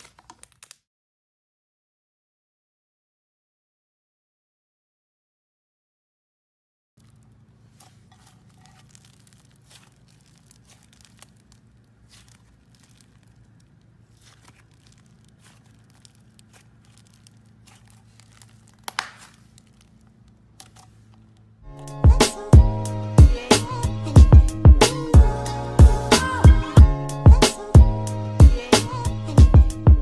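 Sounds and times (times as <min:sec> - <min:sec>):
slime squished by hand: 0:07.0 - 0:21.3.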